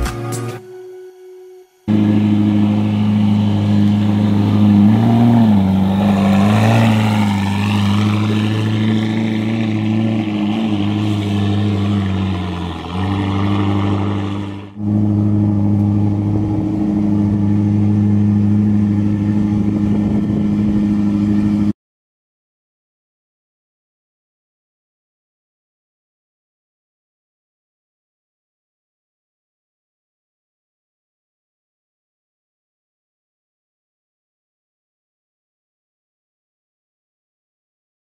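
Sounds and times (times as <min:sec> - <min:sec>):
car engine at low revs: 0:01.9 - 0:21.7.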